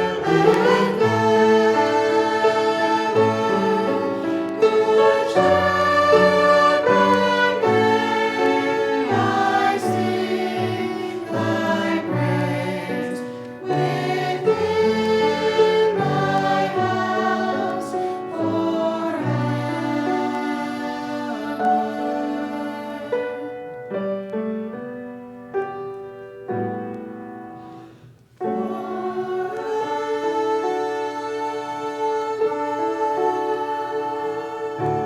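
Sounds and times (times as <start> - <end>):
choir singing sacred music: 0.0 - 23.9, 27.4 - 35.0.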